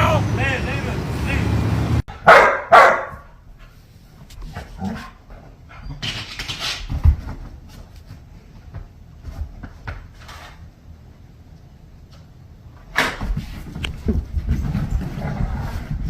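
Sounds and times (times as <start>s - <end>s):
dog barking: 2.1s - 3.3s.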